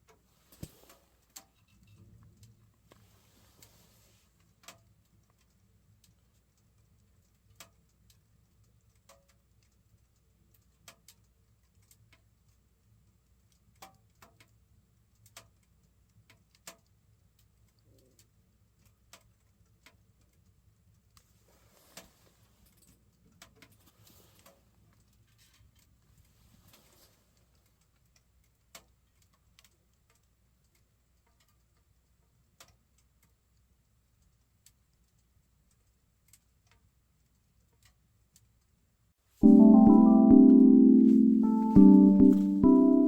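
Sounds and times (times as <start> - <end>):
soft rustle: 0.1 - 1.8, 2.8 - 4.7, 21.1 - 23.0, 23.6 - 27.9.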